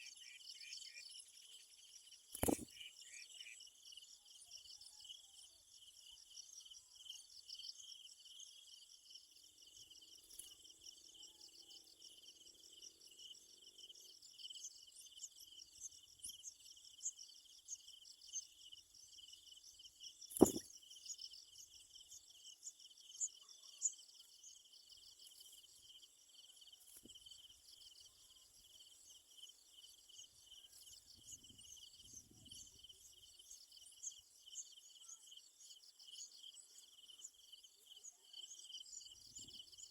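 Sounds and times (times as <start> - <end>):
insects chirring: 1.6 - 2.8, 17.8 - 39.8
sharp click: 2.4 - 2.7, 20.4 - 20.6.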